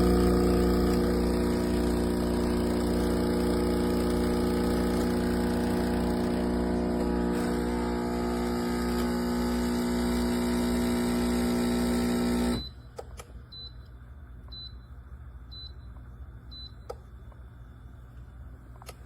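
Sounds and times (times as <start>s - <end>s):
espresso machine pump humming: 0.0s - 12.6s.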